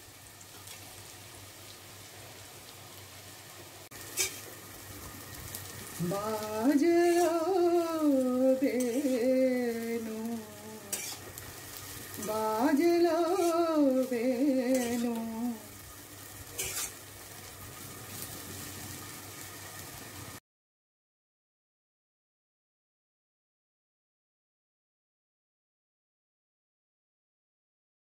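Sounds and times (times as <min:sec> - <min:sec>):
potatoes sizzling in a pan: 0:00.0 - 0:20.4
metal spatula scraping pan: 0:04.1 - 0:04.6, 0:07.0 - 0:07.6, 0:08.6 - 0:09.3, 0:10.9 - 0:11.4, 0:13.2 - 0:13.7, 0:14.6 - 0:15.2, 0:16.6 - 0:17.0.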